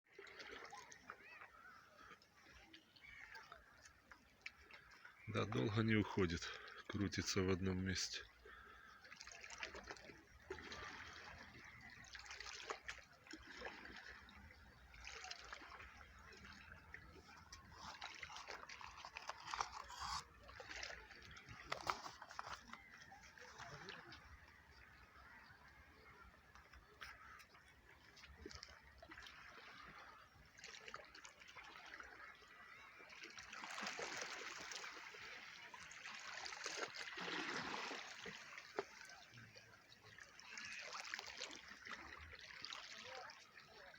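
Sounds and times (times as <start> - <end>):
sea water trickling and lapping: 0.0 - 43.9
small water splashes: 0.0 - 43.9.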